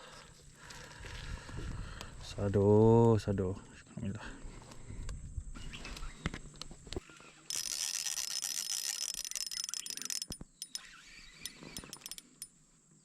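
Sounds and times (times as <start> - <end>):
fishing reel ratcheting clicks: 7.5 - 12.5.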